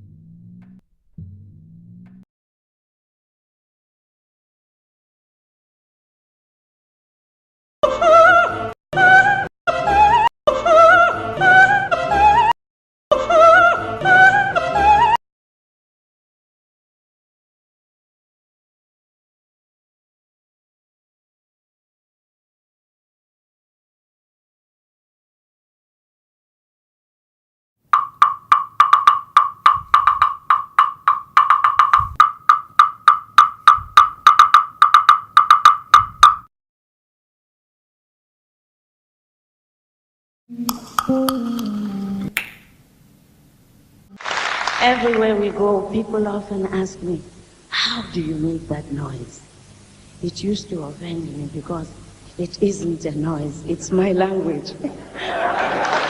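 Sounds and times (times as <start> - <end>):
operatic soprano singing: 7.9 - 15.2, 40.5 - 42.4
sharp pitched percussive clicks: 28.0 - 36.5
soft low thump: 31.9 - 32.3.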